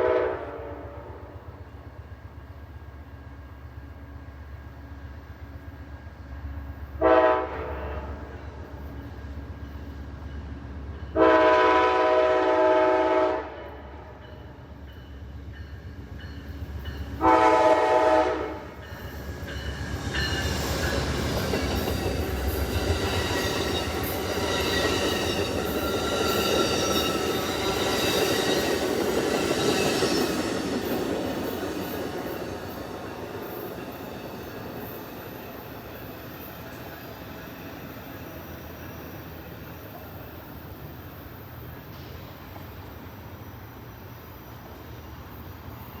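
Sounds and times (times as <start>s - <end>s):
locomotive air horn blasts: 0.0s - 1.3s, 7.0s - 8.3s, 11.2s - 13.9s, 17.2s - 18.8s
train rumbling past: 0.0s - 46.0s.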